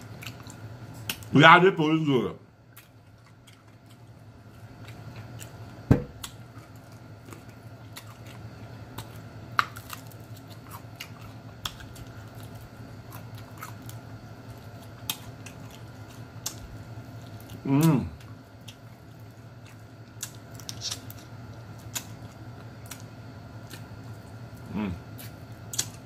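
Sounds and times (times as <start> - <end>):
chewing crispy fried food: 0.0 - 26.0
loud knock: 5.9 - 6.1.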